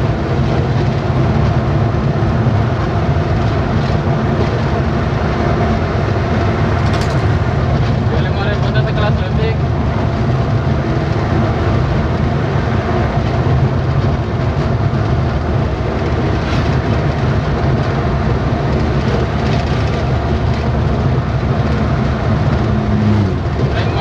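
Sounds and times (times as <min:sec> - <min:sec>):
road noise: 0:00.0 - 0:24.0
vehicle engine drone: 0:00.0 - 0:24.0
rattling clatter: 0:06.7 - 0:10.4, 0:16.0 - 0:24.0.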